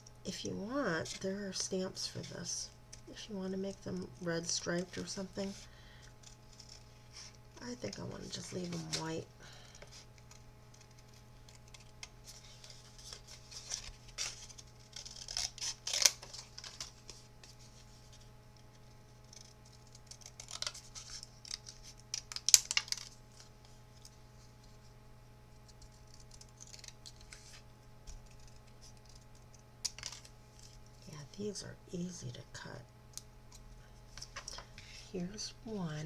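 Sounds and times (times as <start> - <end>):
scissors snipping paper: 10.2 - 16.9, 25.8 - 30.8.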